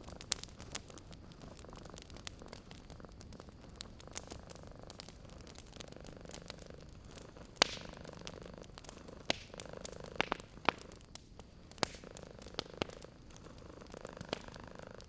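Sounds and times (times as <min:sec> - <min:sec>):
wood fire crackling: 0:00.0 - 0:15.0
cat purring: 0:00.1 - 0:11.1, 0:11.7 - 0:15.0.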